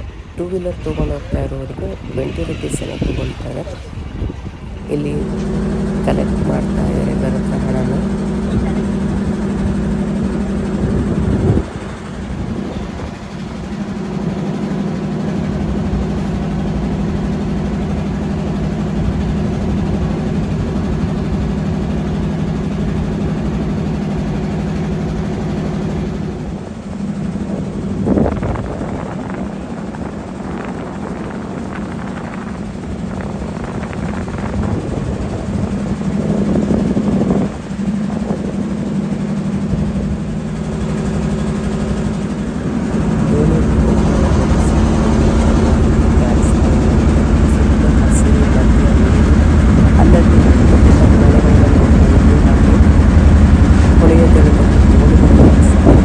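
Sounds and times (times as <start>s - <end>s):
boat motor droning: 0.0s - 56.0s.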